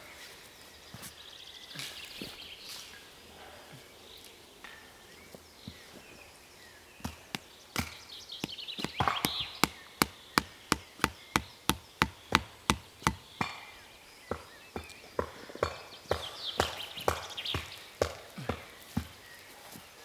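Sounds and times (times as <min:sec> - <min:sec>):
hand tool striking wood: 0:07.0 - 0:19.1.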